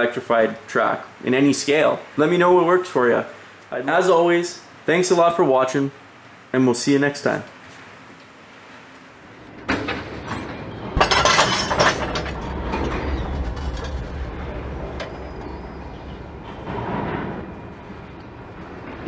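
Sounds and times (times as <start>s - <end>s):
train rumbling: 9.3s - 19.0s
metallic clanks and clicks: 9.6s - 14.3s.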